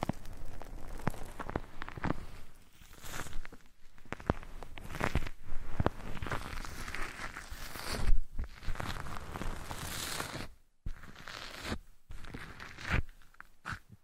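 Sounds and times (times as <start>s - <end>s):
rustling and scratching on microphone: 0.0s - 14.0s.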